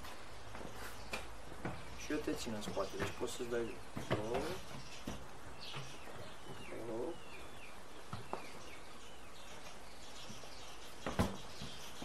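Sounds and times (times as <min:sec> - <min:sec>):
outdoor background noise: 0:00.0 - 0:12.0
small birds chirping: 0:00.0 - 0:12.0.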